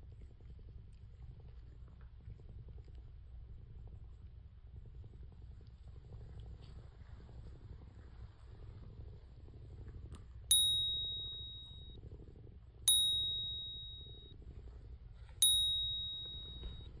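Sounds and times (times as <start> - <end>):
cat purring: 0.0 - 17.0
bell-like dings: 10.5 - 12.0, 12.9 - 14.3, 15.4 - 17.0.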